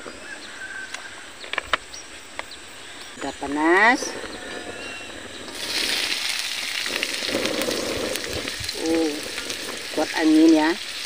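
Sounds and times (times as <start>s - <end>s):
food sizzling in hot oil: 5.0s - 11.0s.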